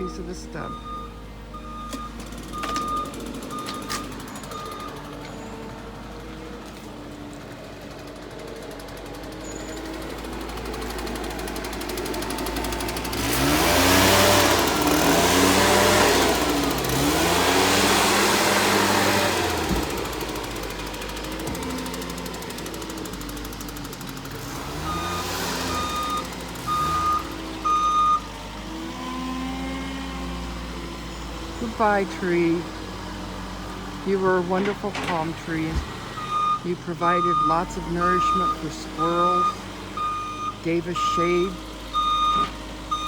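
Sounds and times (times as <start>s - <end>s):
backup alarm beeping: 0.0s - 5.7s, 24.8s - 28.3s, 34.1s - 43.0s
bulldozer diesel engine revving: 0.0s - 43.0s.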